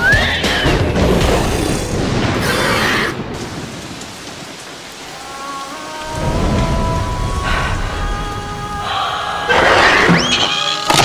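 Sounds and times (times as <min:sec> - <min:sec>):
steady rain: 0:00.5 - 0:11.0
low rumble of thunder: 0:06.1 - 0:08.9.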